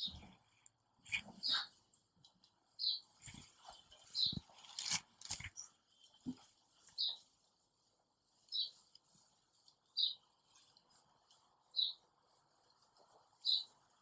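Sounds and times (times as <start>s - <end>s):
small bird chirping: 0.0s - 1.9s, 2.6s - 5.9s, 6.8s - 7.4s, 8.3s - 14.0s
cloth wiping a whiteboard: 10.4s - 14.0s.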